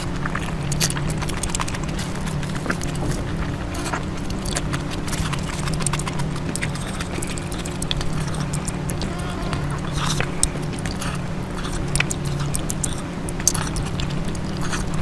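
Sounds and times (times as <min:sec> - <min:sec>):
steady low hum: 0:00.0 - 0:15.0
wet mouth clicks and chewing: 0:00.0 - 0:15.0.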